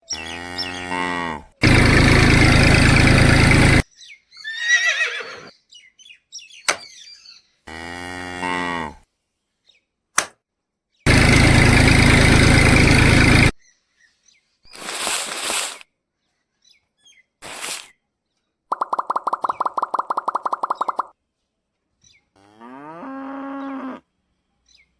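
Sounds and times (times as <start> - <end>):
cow mooing: 0.1 - 1.5, 7.7 - 9.0, 22.4 - 24.0.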